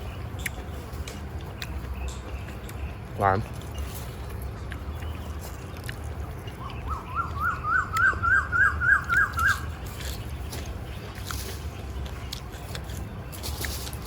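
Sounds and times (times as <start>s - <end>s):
bird calling sharp repeated notes: 6.4s - 10.4s.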